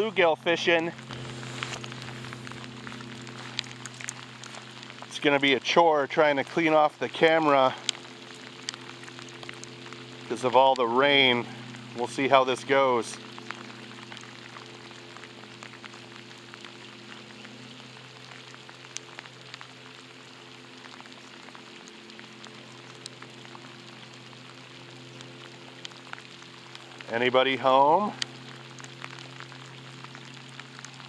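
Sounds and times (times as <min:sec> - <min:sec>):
rain falling on a lake: 0:00.0 - 0:31.0.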